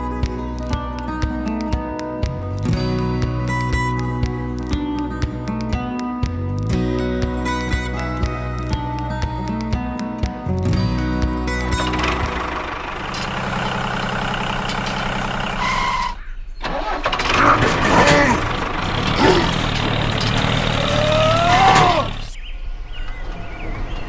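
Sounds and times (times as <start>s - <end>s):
vehicle engine running: 10.9s - 24.0s.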